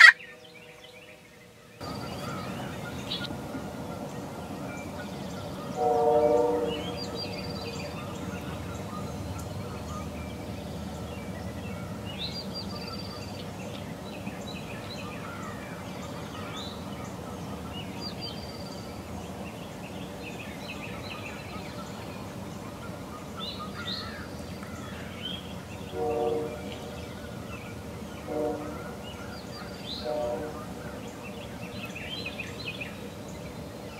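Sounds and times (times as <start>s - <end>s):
turkey gobbling: 0.0s - 0.2s
songbirds chirping: 0.0s - 33.9s.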